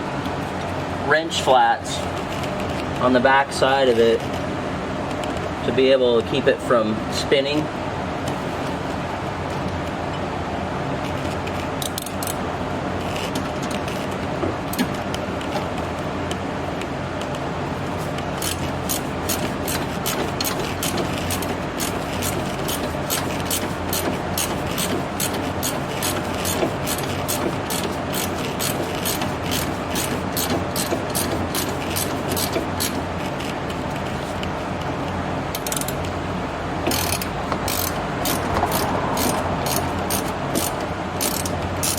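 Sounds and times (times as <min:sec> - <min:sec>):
shop fan noise: 0:00.0 - 0:41.9
ratchet wrench clicking: 0:11.8 - 0:12.4, 0:18.4 - 0:33.5, 0:35.5 - 0:36.1, 0:36.8 - 0:41.9.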